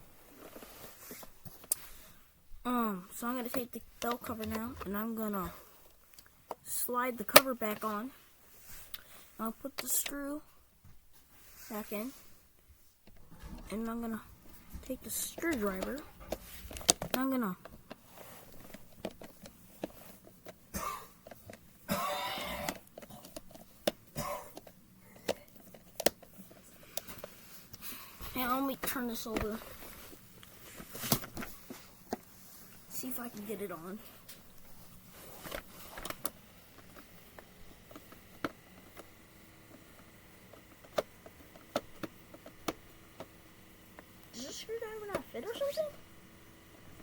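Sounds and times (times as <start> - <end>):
plastic cover being handled: 22.6 - 43.4
screwdriver clicks and taps: 24.6 - 26.3.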